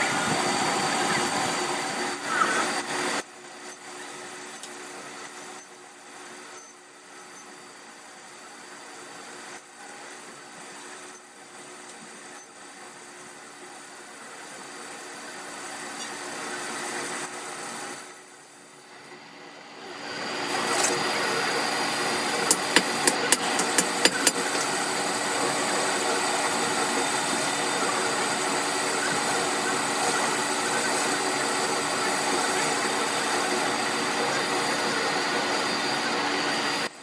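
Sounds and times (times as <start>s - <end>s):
metalworking machinery running: 0.0s - 37.0s.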